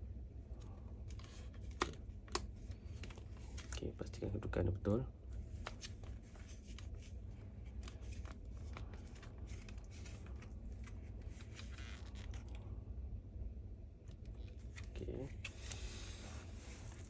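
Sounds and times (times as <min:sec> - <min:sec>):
low steady hum: 0:00.0 - 0:17.0
plastic parts clicking and scraping: 0:01.1 - 0:03.8.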